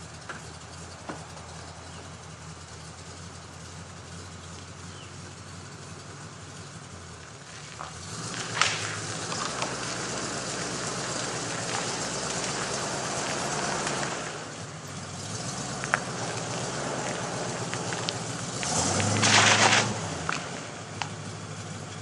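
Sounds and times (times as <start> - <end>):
engine running: 0.0 - 22.0
crackling rustling noise: 7.3 - 14.6, 15.2 - 21.2
sharp crack: 7.3 - 21.5.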